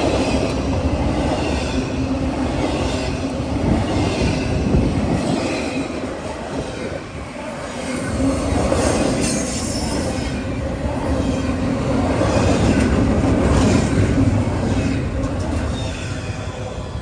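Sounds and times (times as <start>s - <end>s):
train wheels rumbling on rails: 0.0s - 17.0s
high wheel squeal: 7.9s - 10.5s.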